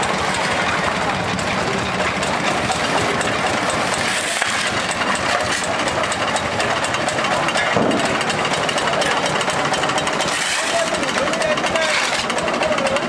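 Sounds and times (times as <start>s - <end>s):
excavator engine running: 0.0s - 13.0s.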